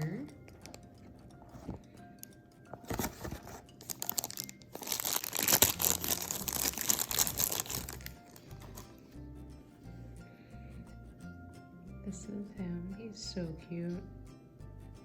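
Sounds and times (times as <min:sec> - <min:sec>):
packaging crinkling and rustling: 0:02.8 - 0:09.0.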